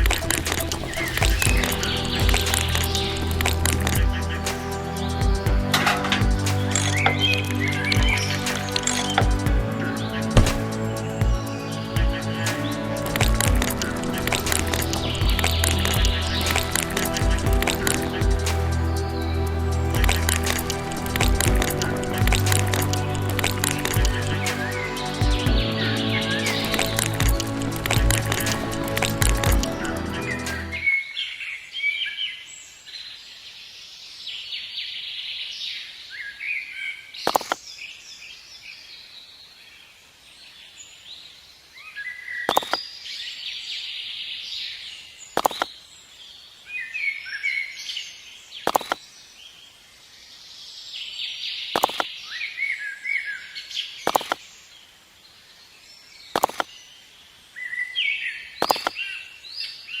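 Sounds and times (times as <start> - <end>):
small birds chirping: 36.0 - 60.0.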